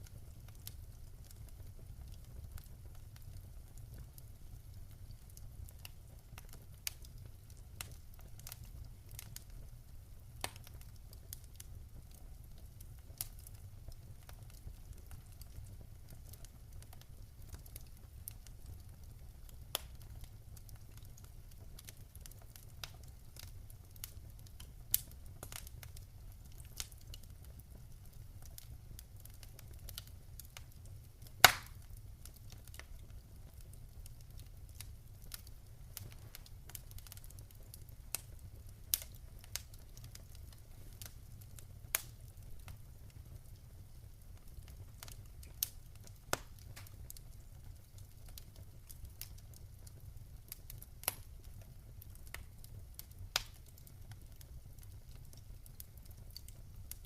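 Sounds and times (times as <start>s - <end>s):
wood fire crackling: 0.0s - 57.0s
loud fire pop: 31.5s - 31.7s.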